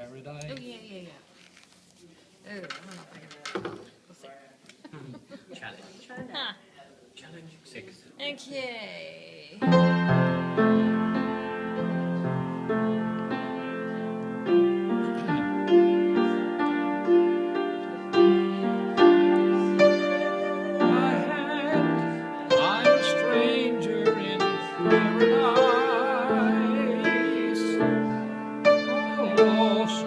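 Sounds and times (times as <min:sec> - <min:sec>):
piano tune: 0:09.6 - 0:30.0.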